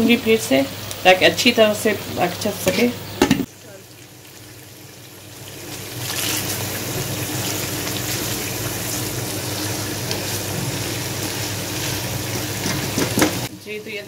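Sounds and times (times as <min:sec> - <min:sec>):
chicken sizzling in a wok: 0:00.0 - 0:14.0
spatula stirring in a wok: 0:05.6 - 0:13.6.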